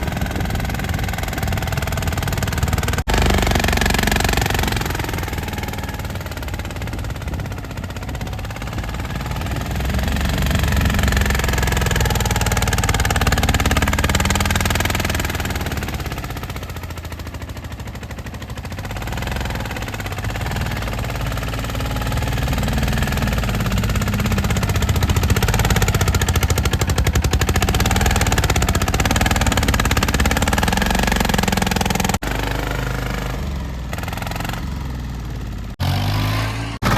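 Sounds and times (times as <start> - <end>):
tractor diesel engine knocking: 0.0 - 35.8.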